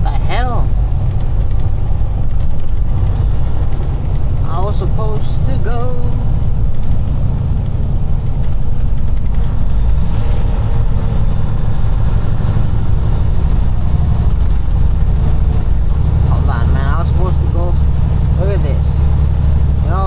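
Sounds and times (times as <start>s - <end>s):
truck diesel engine rumble: 0.0s - 20.0s.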